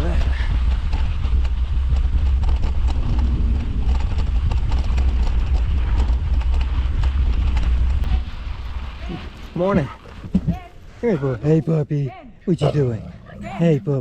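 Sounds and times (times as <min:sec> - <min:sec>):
wind rumble on microphone: 0:00.0 - 0:10.6
mountain bike rattling on trail: 0:00.0 - 0:10.9.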